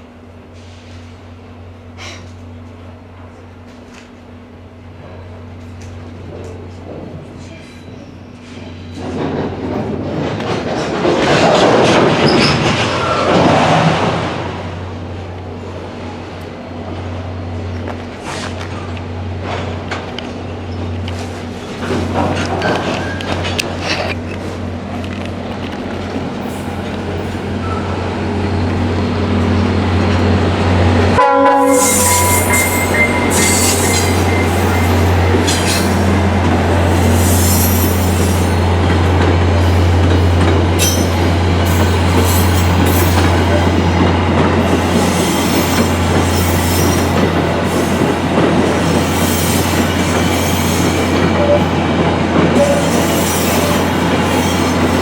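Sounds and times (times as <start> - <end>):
diesel train engine drone: 0.0 - 55.0
wheels clattering on rails: 5.0 - 14.8, 17.6 - 31.2, 32.0 - 55.0
train wheels squealing: 7.4 - 9.4, 22.6 - 23.5, 27.5 - 28.0, 31.7 - 38.7, 39.6 - 44.0, 44.6 - 51.9, 52.5 - 55.0.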